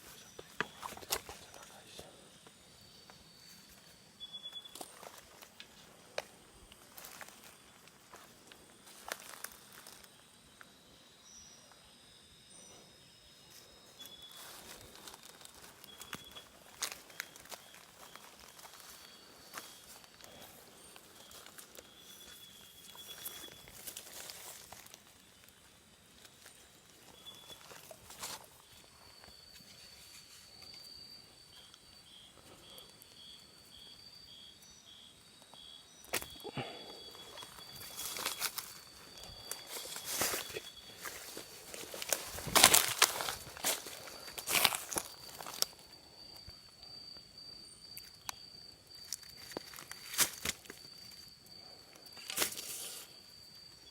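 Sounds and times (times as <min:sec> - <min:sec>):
insects trilling: 0:00.0 - 0:53.9
crackles and rustles: 0:14.0 - 0:31.0, 0:37.2 - 0:45.9
rustling footsteps: 0:37.2 - 0:45.7.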